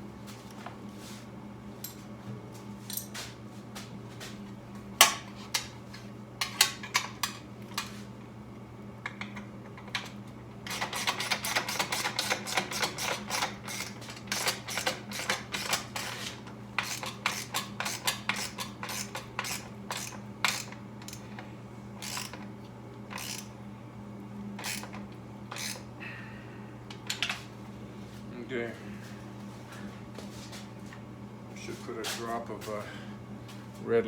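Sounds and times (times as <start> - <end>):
steady low hum: 0.0 - 34.0
hand tools clicking on screws: 10.7 - 16.2, 16.8 - 21.3, 22.0 - 22.4, 23.1 - 23.5, 24.6 - 25.8.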